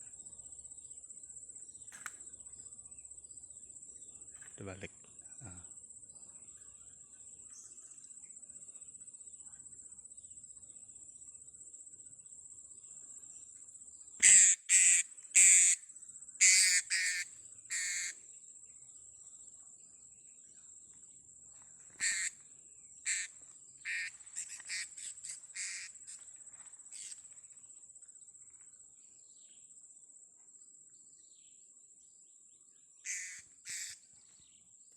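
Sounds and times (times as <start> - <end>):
high insect whine: 0.0 - 19.4, 21.5 - 31.5, 33.0 - 34.9
parrots calling: 16.4 - 18.1, 22.0 - 22.3, 33.1 - 34.0.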